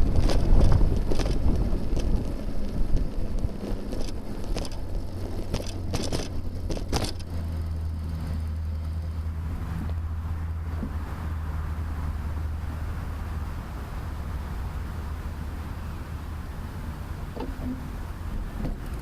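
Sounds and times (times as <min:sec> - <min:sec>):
steady low hum: 0:00.0 - 0:19.0
wind rumbling on microphone: 0:00.0 - 0:19.0
sharp knocks and rattles: 0:03.9 - 0:07.5.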